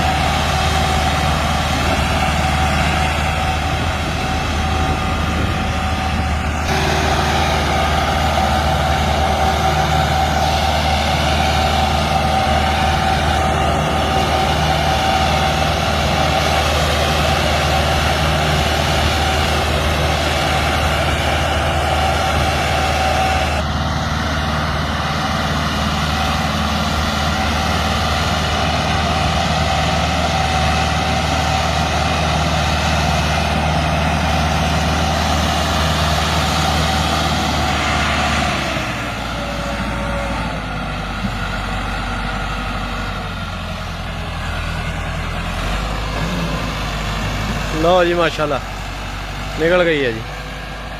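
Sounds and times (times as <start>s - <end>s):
tractor diesel engine droning: 0.0s - 50.9s.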